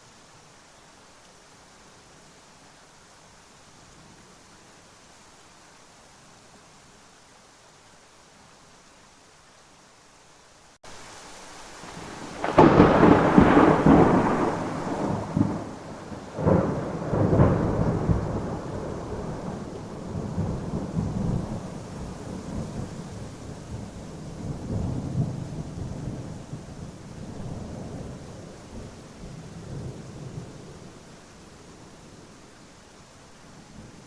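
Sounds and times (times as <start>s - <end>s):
steady rain hissing: 0.0s - 34.0s
thunder clap and rumble: 12.0s - 21.7s.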